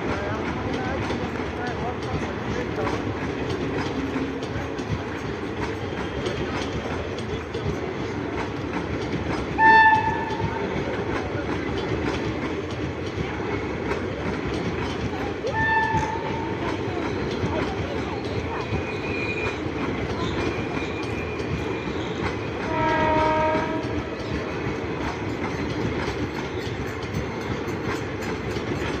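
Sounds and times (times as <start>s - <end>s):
train rumble and wheel clatter: 0.0s - 29.0s
train horn blasts: 9.6s - 10.6s, 15.5s - 16.5s, 22.6s - 24.1s.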